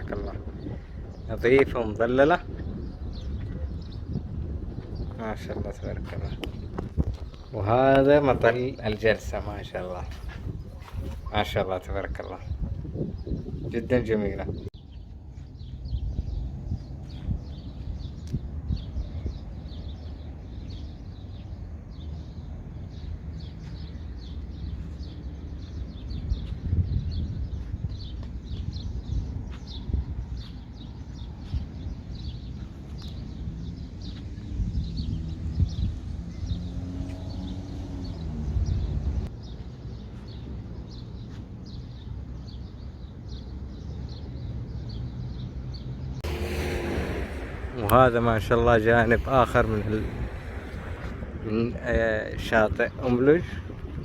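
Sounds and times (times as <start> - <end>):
small birds chirping: 0.0 - 54.0
steady low rumble: 46.2 - 54.0.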